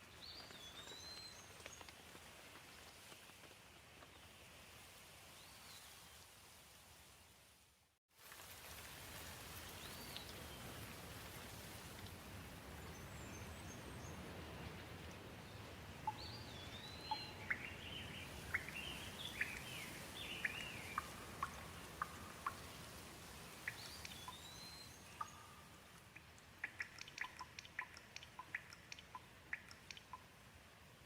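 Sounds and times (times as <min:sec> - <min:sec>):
gentle rain hissing: 0:00.0 - 0:31.0
water drips ticking: 0:16.0 - 0:30.5.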